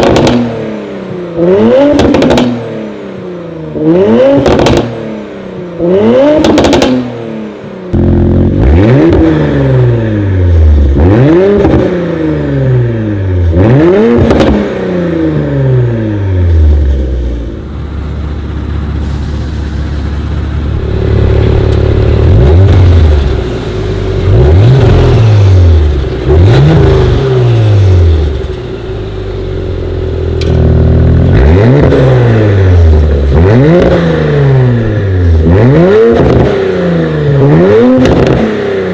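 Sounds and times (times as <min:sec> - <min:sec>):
car engine free-revving: 0:08.0 - 0:17.6, 0:18.7 - 0:38.9.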